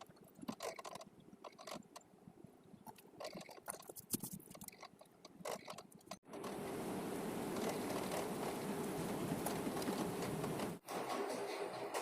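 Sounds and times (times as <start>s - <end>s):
small parts clicking and scraping: 0.0s - 2.1s, 2.8s - 6.6s
steady noisy hum: 6.3s - 10.8s.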